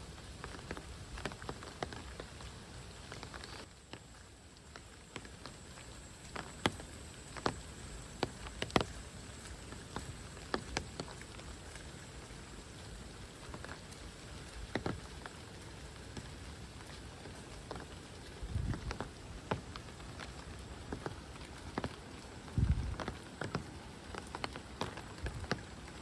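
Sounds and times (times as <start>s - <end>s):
large raindrops tapping: 0.0s - 26.0s
steady rain: 0.0s - 26.0s.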